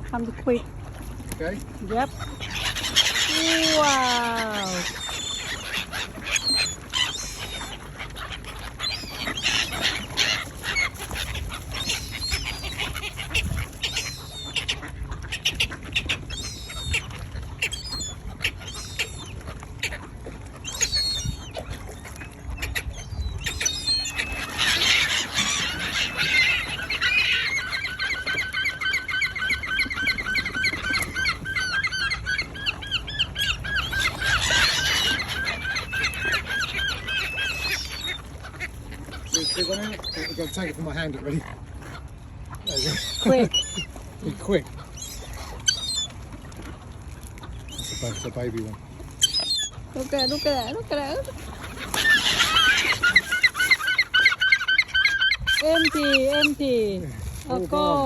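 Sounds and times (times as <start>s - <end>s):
waterbirds calling: 0.0s - 58.0s
fast repeated bird calls: 23.5s - 38.2s.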